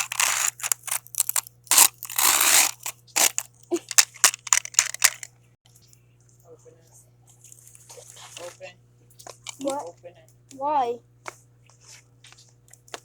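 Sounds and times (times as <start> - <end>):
sharp cracks and pops: 0.0 - 5.3
microwave oven humming: 0.0 - 13.0.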